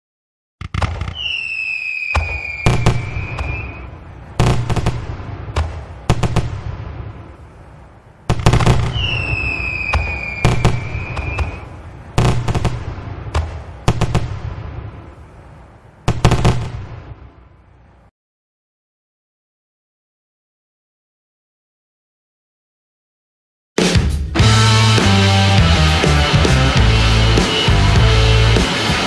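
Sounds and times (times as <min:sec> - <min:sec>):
deep firework bangs: 0:00.7 - 0:03.8, 0:04.4 - 0:07.3, 0:08.3 - 0:15.1, 0:16.1 - 0:17.2
firework whistle: 0:01.0 - 0:04.0, 0:08.6 - 0:11.7.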